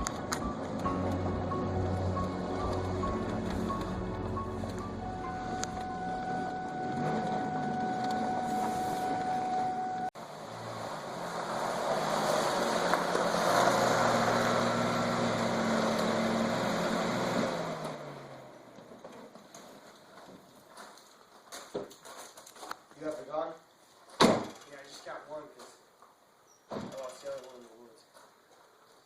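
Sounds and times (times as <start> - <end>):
car engine running: 0.0 - 11.9.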